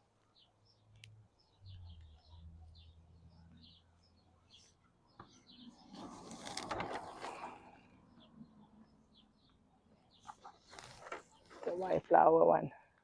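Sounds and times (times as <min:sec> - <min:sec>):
small birds chirping: 0:00.0 - 0:13.0
rustling scraping noise: 0:05.6 - 0:07.9, 0:10.2 - 0:12.1.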